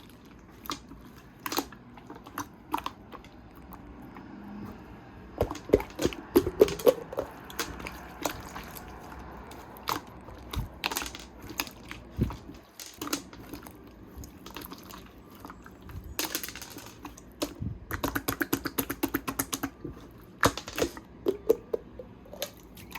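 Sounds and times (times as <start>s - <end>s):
small objects clicking on desk: 9.9s - 13.6s, 16.1s - 19.8s.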